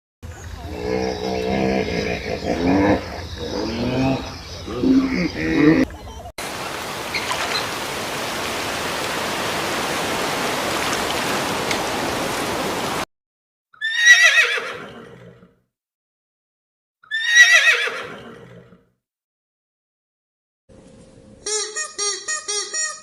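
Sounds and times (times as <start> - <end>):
horse whinnying: 13.8 - 15.5, 17.0 - 18.8.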